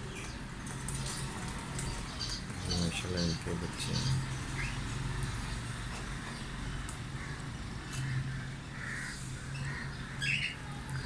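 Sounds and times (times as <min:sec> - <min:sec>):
birds giving harsh calls: 0:01.9 - 0:04.8, 0:07.1 - 0:10.6.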